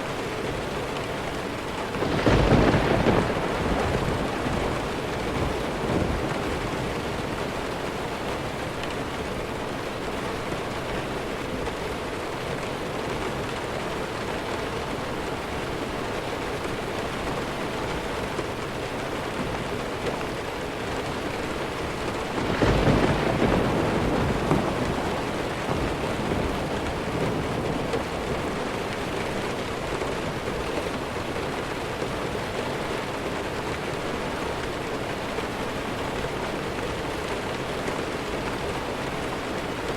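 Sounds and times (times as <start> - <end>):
heavy rain: 0.0 - 39.9
thunder rolling: 2.0 - 8.1, 22.2 - 29.6.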